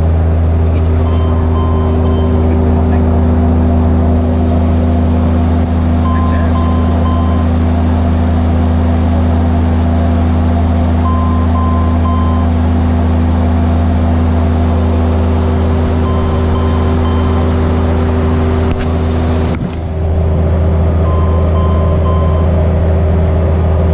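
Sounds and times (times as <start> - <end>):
aircraft engine drone: 0.0 - 23.9
short alert beeps: 1.0 - 2.9, 6.0 - 7.5, 11.1 - 12.5, 15.9 - 17.6, 21.1 - 22.5.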